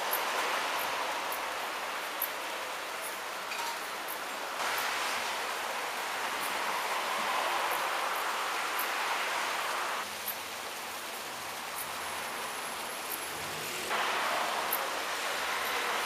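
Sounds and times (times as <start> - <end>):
heavy rain: 0.0 - 16.0
wind: 0.0 - 16.0.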